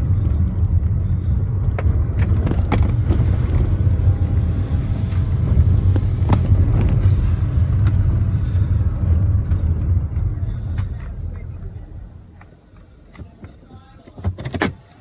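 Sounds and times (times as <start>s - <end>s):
car engine and road rumble: 0.0s - 15.0s
small knocks and rattles: 0.1s - 4.2s.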